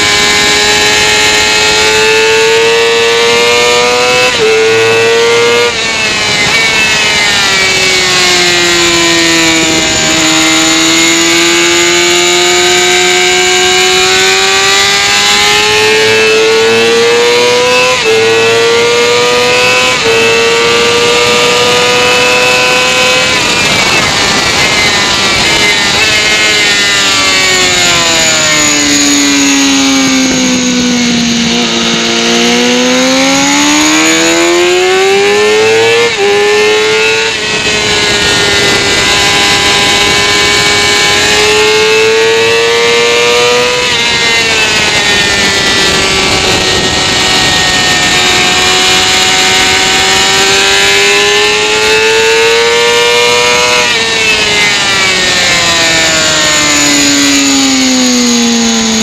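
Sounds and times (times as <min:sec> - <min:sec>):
motorcycle engine revving: 0:00.0 - 0:59.0
wind rush on microphone: 0:22.7 - 0:34.4, 0:37.2 - 0:41.9, 0:43.8 - 0:50.6.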